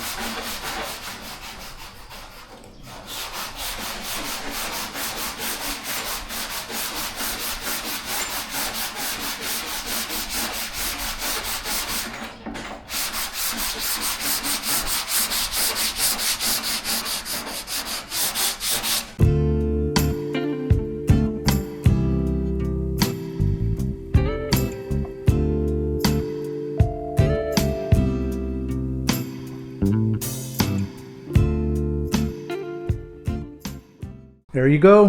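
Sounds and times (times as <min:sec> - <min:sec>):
sandpaper rasping on panel: 0:00.0 - 0:19.2
acoustic guitar music: 0:19.2 - 0:34.3.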